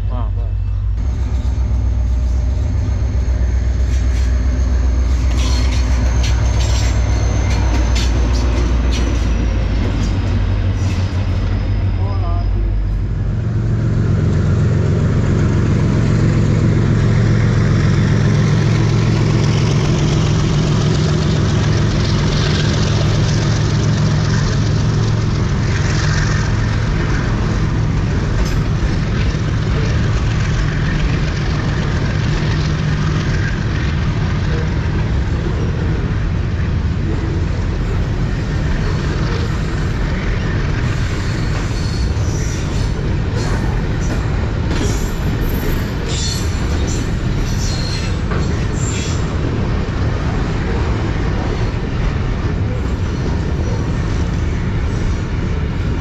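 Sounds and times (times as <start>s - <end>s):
locomotive engine drone: 0.0s - 56.0s
train wheels clattering on rails: 1.0s - 11.8s, 13.0s - 56.0s.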